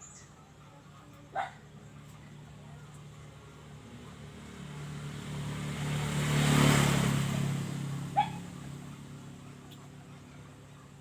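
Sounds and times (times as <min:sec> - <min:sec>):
vehicle driving past: 0:03.3 - 0:09.6.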